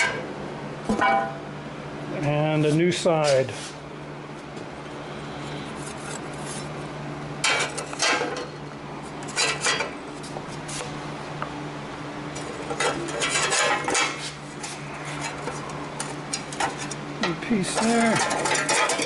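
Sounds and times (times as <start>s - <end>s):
steady low hum: 0.0s - 19.0s
steel pieces clinking and scraping: 17.7s - 19.0s.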